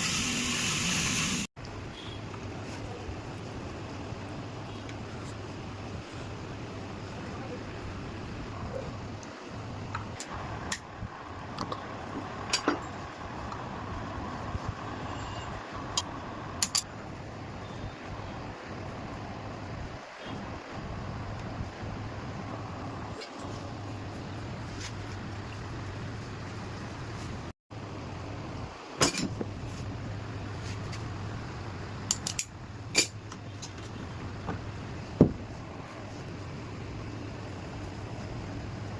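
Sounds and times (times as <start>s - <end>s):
steady low hum: 1.9s - 38.9s.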